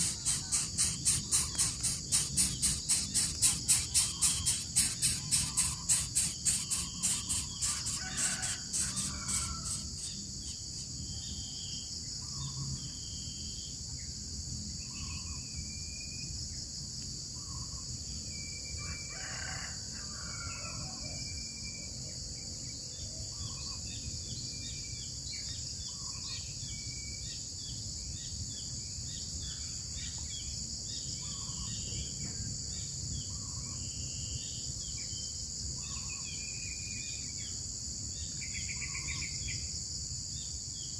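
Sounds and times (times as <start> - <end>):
insects droning: 0.0 - 40.9
rooster crowing: 7.3 - 10.2, 18.8 - 21.0.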